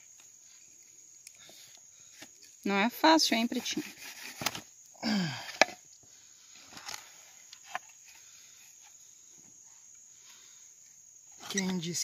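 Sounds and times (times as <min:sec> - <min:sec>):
man groaning: 0:05.0 - 0:05.5.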